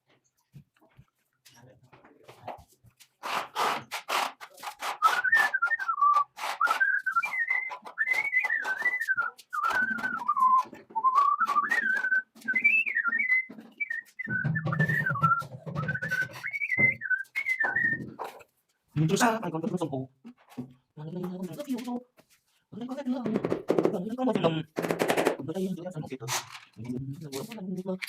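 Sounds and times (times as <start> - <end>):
person whistling a tune: 5.0 - 18.2.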